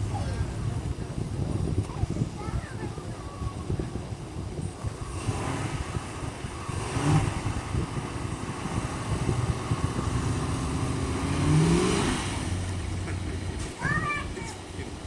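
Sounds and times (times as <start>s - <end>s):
car engine revving: 4.7s - 13.8s.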